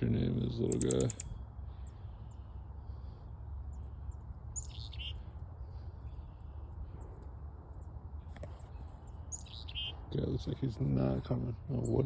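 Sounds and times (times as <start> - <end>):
steady low rumble: 0.0 - 9.3
songbird call: 0.6 - 2.4.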